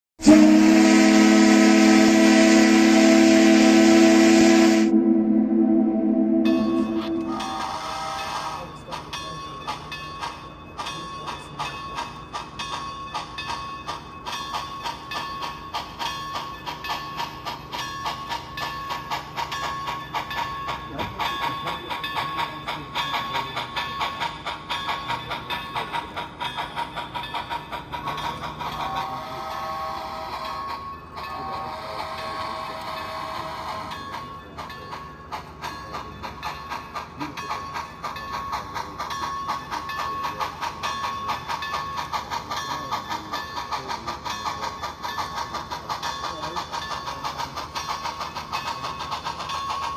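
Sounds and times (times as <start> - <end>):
model train rhythmic clicking: 0.2 - 4.9, 6.5 - 49.9
steady high hum: 4.8 - 7.6.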